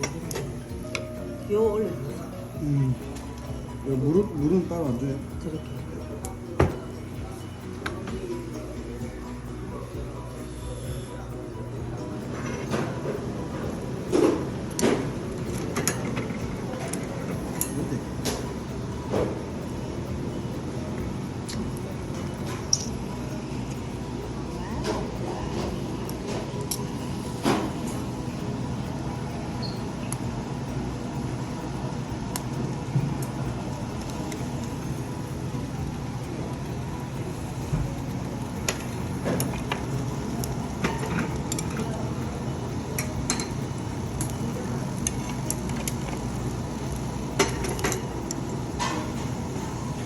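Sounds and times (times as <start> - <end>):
dishes and utensils clinking: 0.0 - 30.5, 32.3 - 50.0
low background hum: 0.0 - 50.0.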